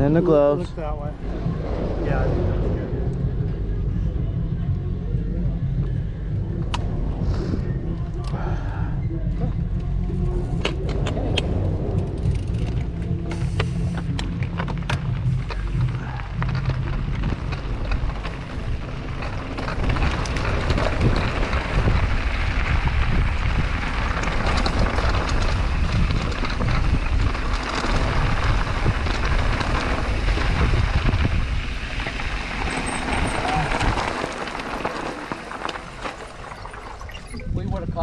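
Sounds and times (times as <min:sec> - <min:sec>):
tyres rumbling on dirt: 0:00.0 - 0:37.6
wind buffeting microphone: 0:00.0 - 0:38.0.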